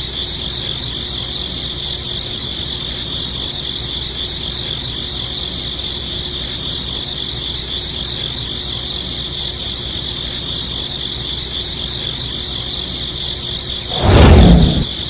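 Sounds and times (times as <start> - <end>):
loud low rumble: 13.9 - 15.0.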